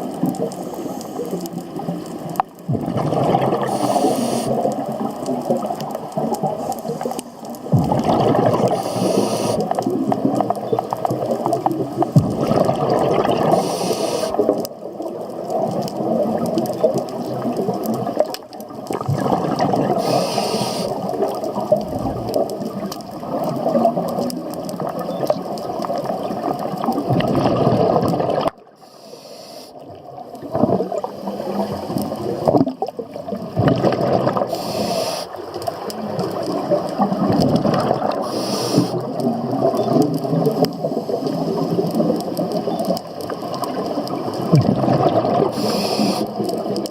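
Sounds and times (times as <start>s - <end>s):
bubbling exhales underwater: 2.7s - 28.8s, 30.0s - 46.9s
hissing regulator breaths: 3.6s - 4.6s, 8.7s - 9.8s, 13.5s - 14.4s, 20.0s - 21.0s, 28.8s - 29.8s, 34.5s - 35.4s, 38.2s - 39.0s, 45.5s - 46.4s.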